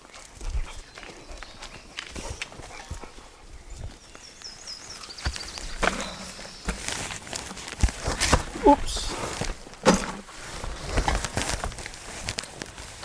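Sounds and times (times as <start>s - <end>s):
footsteps crunching on rough ground: 3.9s - 13.0s.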